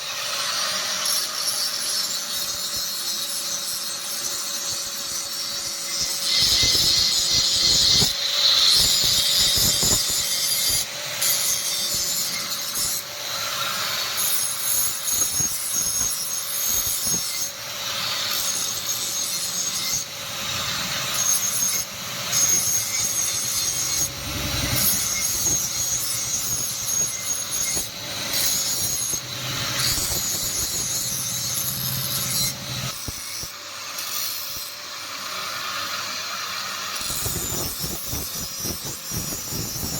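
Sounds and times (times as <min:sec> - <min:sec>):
file scraping steel: 0:00.0 - 0:39.9.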